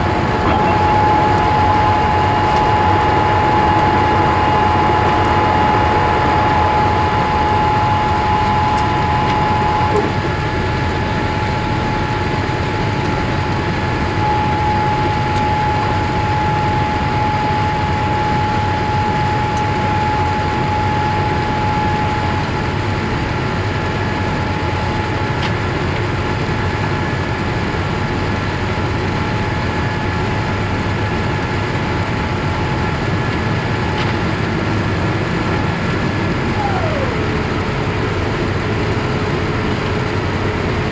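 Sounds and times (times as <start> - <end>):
jet engine rushing noise: 0.0 - 10.5, 35.6 - 37.7
jet engine whine: 0.0 - 40.9.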